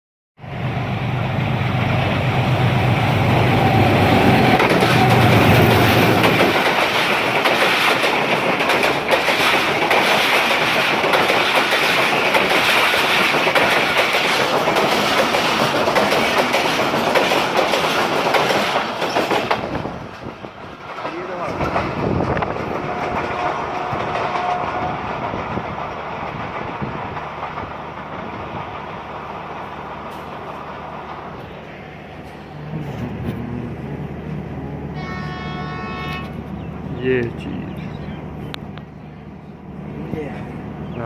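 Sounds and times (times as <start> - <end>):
locomotive engine humming: 0.4 - 41.0
train wheels clattering: 1.8 - 31.6.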